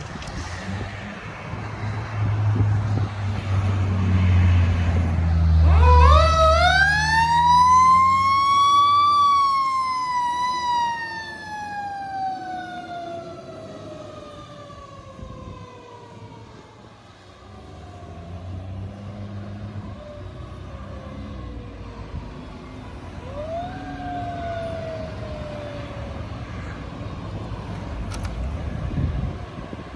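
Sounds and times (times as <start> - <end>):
fire engine rumbling: 0.0 - 29.9
siren winding up and down: 5.6 - 13.9, 23.2 - 26.4.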